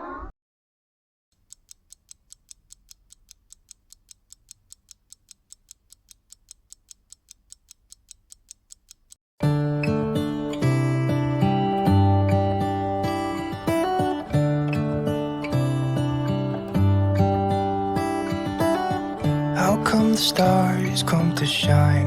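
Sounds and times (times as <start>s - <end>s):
clock-like ticking: 1.4s - 9.2s
acoustic guitar music: 9.4s - 22.0s.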